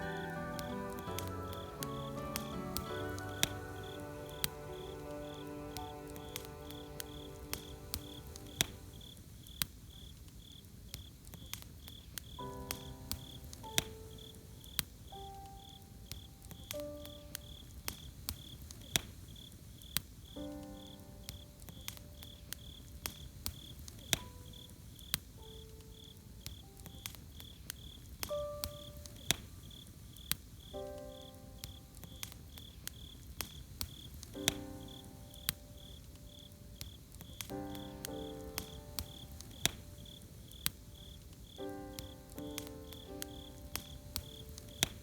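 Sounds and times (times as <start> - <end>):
soft background music chords: 0.0 - 9.3, 12.4 - 17.9, 34.2 - 45.0
crickets chirping: 0.0 - 11.1, 11.9 - 45.0
campfire crackling and popping: 0.0 - 45.0.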